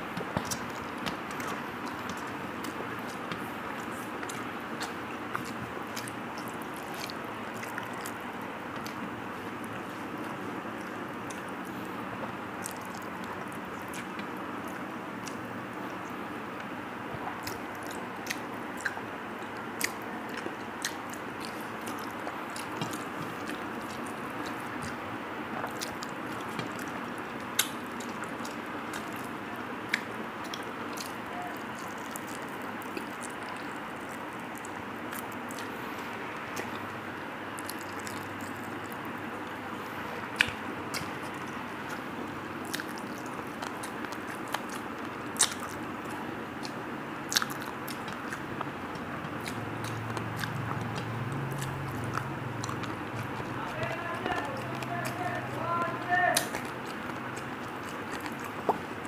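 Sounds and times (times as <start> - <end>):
chewing and lip-smacking: 0.0 - 59.0
sharp mouth clicks: 0.1 - 9.0, 12.6 - 25.0, 25.6 - 29.3, 40.3 - 59.0.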